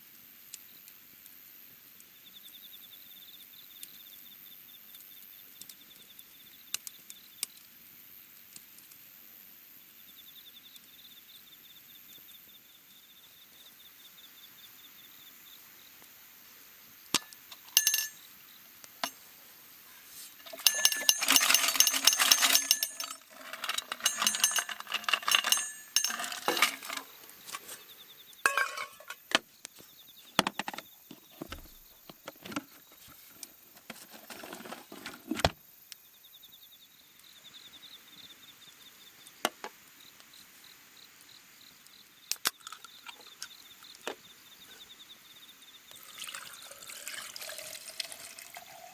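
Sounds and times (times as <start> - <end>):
insect chirping: 2.1 - 7.7, 9.6 - 48.9
hard objects clinking and clattering: 17.2 - 18.2, 20.3 - 29.4.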